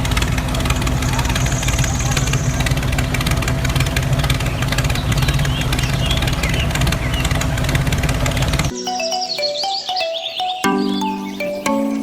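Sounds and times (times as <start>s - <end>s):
engine running with fast chug: 0.0s - 8.7s.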